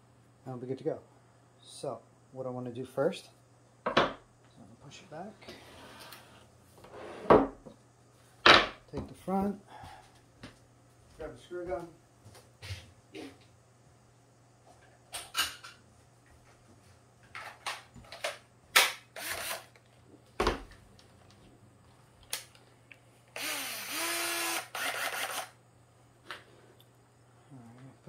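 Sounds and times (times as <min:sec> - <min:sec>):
cordless screw gun running: 0:19.2 - 0:19.7, 0:23.4 - 0:25.6.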